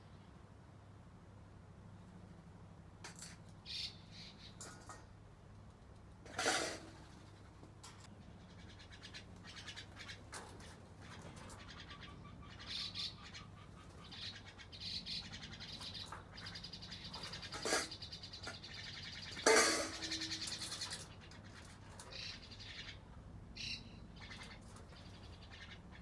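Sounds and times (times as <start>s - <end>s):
small birds chirping: 3.4s - 5.0s, 7.1s - 26.0s
high bird trill: 3.6s - 4.6s, 11.1s - 23.0s, 23.6s - 26.0s.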